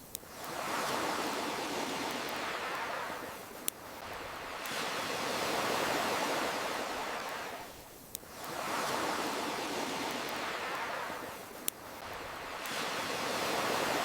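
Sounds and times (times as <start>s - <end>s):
ocean waves washing: 0.2s - 14.0s
campfire pops: 11.4s - 12.8s.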